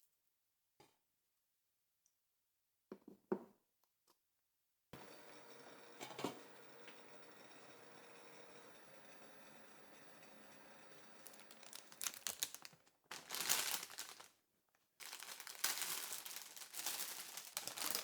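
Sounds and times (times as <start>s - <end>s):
packaging crinkling: 11.2s - 14.4s, 15.0s - 18.0s.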